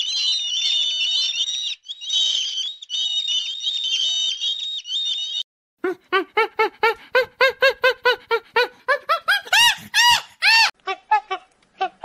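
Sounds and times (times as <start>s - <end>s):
small animal squealing: 0.0s - 5.3s.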